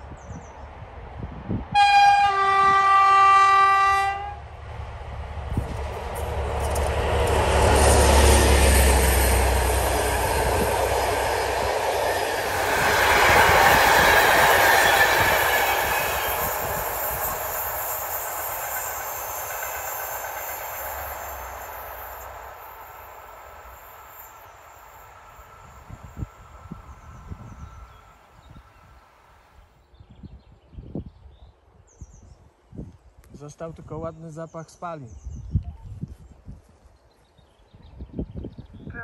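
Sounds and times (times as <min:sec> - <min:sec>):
diesel locomotive engine droning: 0:00.7 - 0:29.2
train wheels on rails: 0:04.5 - 0:29.0.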